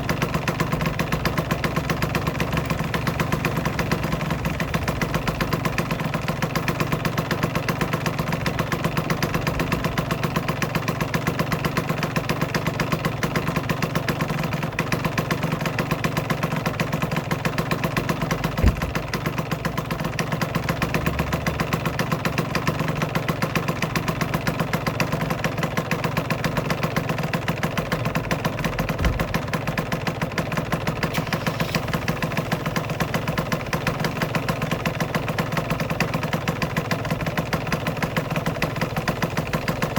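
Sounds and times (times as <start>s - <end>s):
two-stroke motorcycle engine idling: 0.0s - 39.9s
low thumps: 18.6s - 19.0s.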